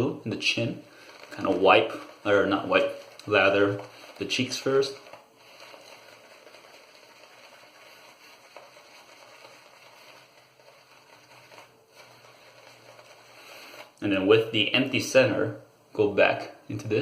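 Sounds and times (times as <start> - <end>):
shaving brush swishing: 0.8 - 14.0.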